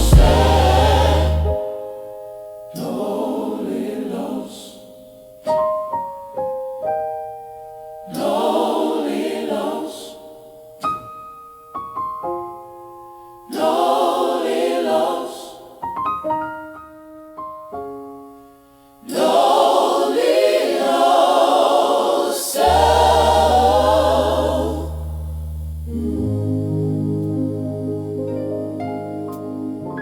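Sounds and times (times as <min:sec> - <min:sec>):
low bass note: 0:00.0 - 0:01.6, 0:22.7 - 0:28.3
choir singing: 0:00.0 - 0:01.9, 0:02.7 - 0:05.0, 0:08.0 - 0:10.5, 0:13.5 - 0:15.9, 0:19.0 - 0:30.0.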